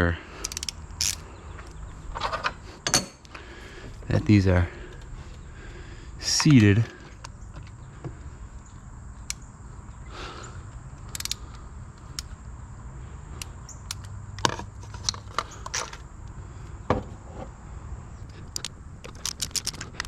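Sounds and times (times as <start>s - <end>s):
low steady hum: 0.0s - 20.0s
hand tools clicking and tapping: 0.4s - 1.8s.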